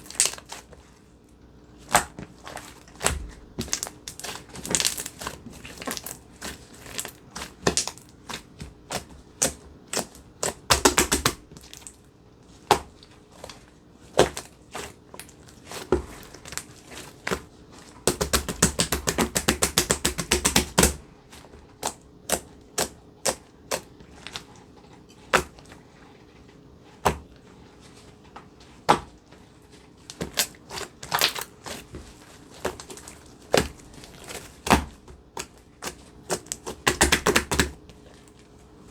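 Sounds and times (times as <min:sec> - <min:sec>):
slime crackling and popping: 0:00.0 - 0:00.6, 0:01.9 - 0:12.0, 0:30.1 - 0:31.9, 0:35.8 - 0:37.8.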